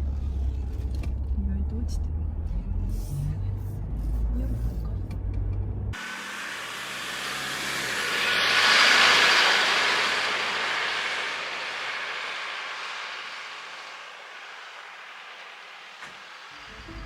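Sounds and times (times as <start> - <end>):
vehicle passing by: 5.6 - 17.0.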